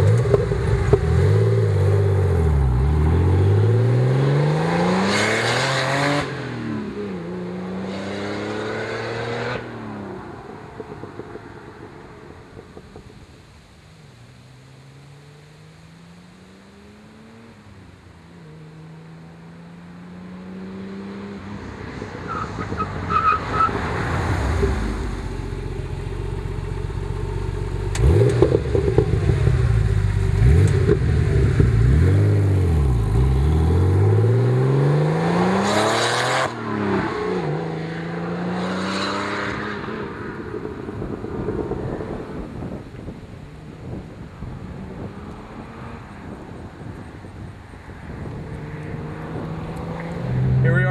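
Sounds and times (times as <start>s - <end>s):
car engine accelerating hard: 23.5s - 43.2s, 48.2s - 50.9s.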